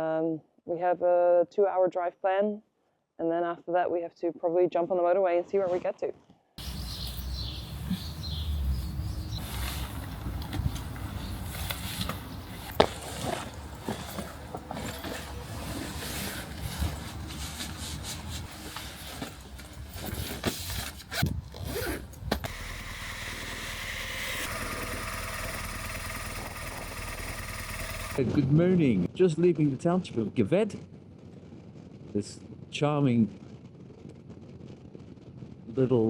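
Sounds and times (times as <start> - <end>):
zipping and scraping of gear: 9.3 - 28.2
motorcycle engine idling: 22.5 - 28.2.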